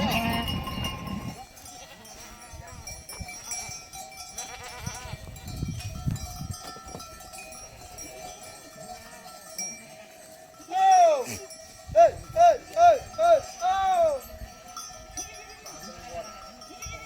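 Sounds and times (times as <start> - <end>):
goats bleating: 0.0 - 2.6, 4.4 - 5.5
animal bells ringing: 0.0 - 17.0.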